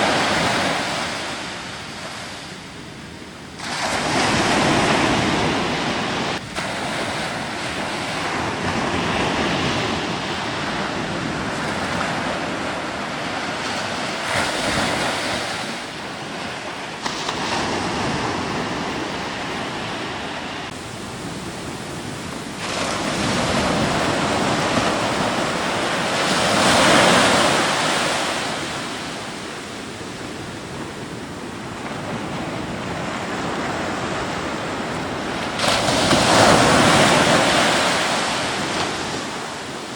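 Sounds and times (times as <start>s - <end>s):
rushing surf and wind: 0.0s - 39.9s.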